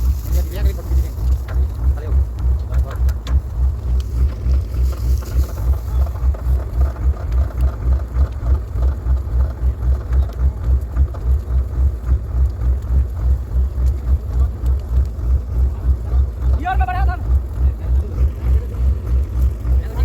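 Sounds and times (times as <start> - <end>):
tractor diesel engine rumbling: 0.0 - 20.0.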